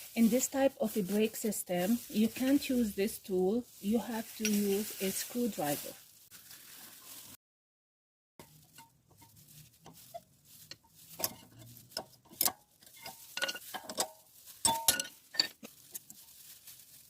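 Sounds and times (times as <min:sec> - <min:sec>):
metal tools clinking: 0:11.2 - 0:15.7.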